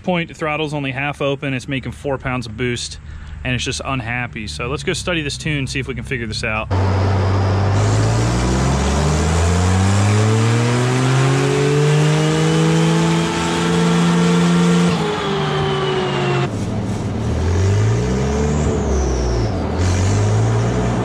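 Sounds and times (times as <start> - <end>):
turbocharged engine revving: 4.8 - 21.0.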